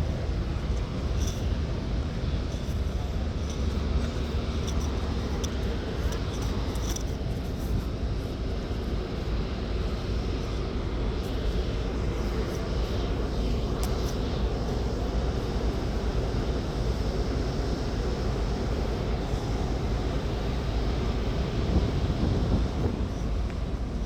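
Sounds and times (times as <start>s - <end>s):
ship engine drone: 0.0s - 24.0s
wind noise: 0.0s - 24.0s.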